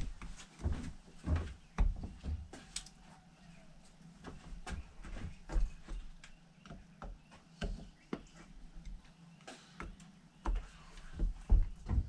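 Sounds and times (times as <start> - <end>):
dull knock: 11.2 - 12.0.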